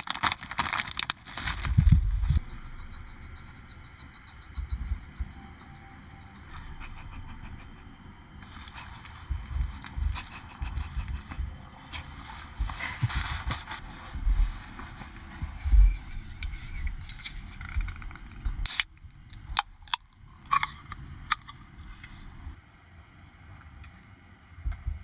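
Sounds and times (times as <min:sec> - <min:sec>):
wind buffeting microphone: 0:01.6 - 0:19.6.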